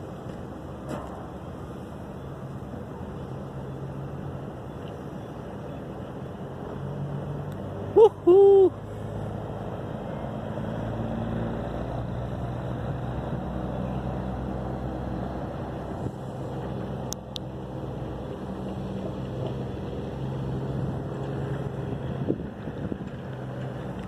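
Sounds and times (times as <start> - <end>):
engine hum: 0.0 - 24.0.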